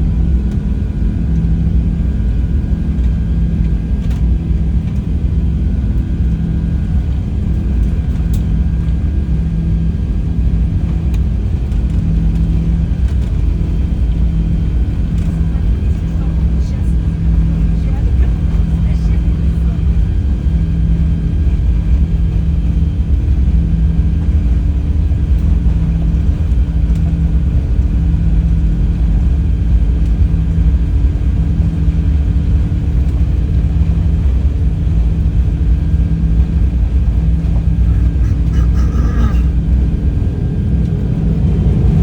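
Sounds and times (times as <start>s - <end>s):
jet engines at takeoff thrust: 0.0s - 42.0s.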